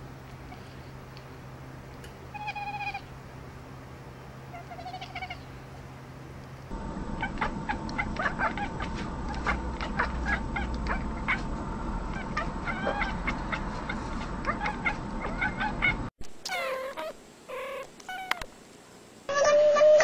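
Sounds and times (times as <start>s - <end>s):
steady low hum: 0.0s - 19.3s
cat meowing: 2.3s - 3.1s
cats chirping and chattering: 2.3s - 3.1s, 4.5s - 5.5s, 7.2s - 11.5s, 12.1s - 18.4s.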